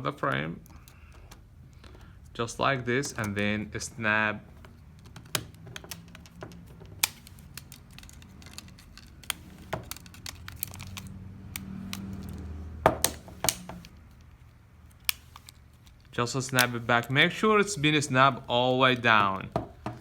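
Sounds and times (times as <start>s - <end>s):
plastic phone frame clicking: 4.9s - 14.0s.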